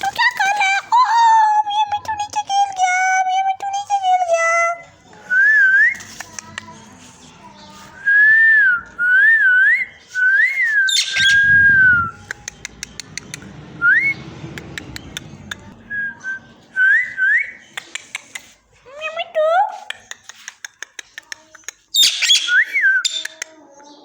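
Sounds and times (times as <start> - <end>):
parrot whistling: 9.8 - 12.4.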